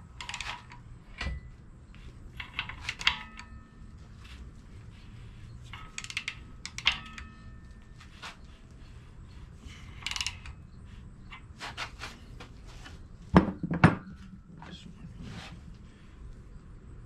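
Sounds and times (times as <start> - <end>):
metallic ringing: 2.4 - 4.3, 5.4 - 8.7
ratchet wrench clicking: 5.6 - 8.4, 9.8 - 10.7.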